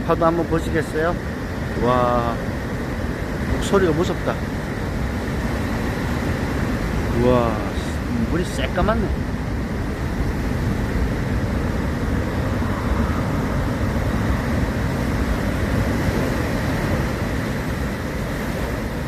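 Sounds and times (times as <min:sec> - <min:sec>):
heavy surf waves breaking: 0:00.0 - 0:19.0.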